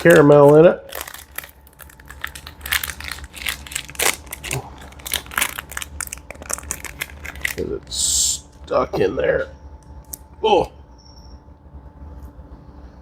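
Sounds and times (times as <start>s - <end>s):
candy wrapper crinkling: 0.0s - 7.9s.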